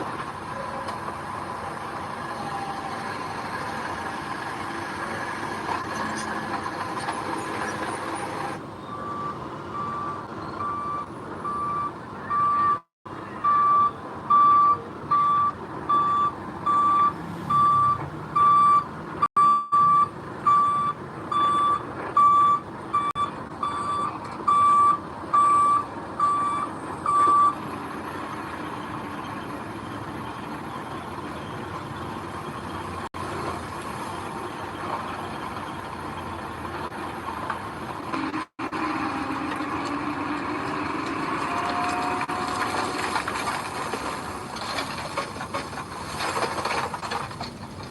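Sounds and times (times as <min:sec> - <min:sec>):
diesel engine running: 0:00.0 - 0:47.9
reverse alarm beeping: 0:13.4 - 0:18.8.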